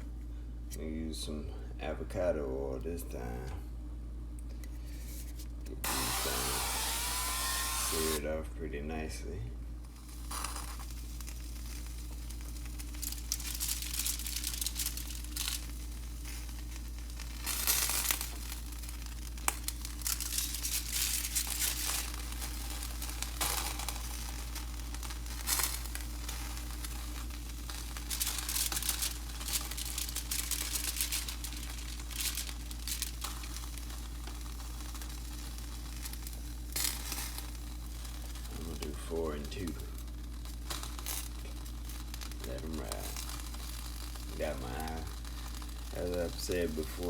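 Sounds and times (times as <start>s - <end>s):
low hum: 0.0s - 10.2s
crinkling and rustling: 9.9s - 47.0s.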